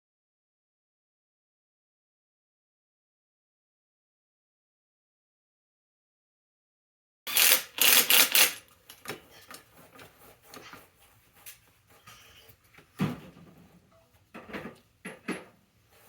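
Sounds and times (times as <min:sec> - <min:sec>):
objects clattering and knocking: 0:12.7 - 0:15.7.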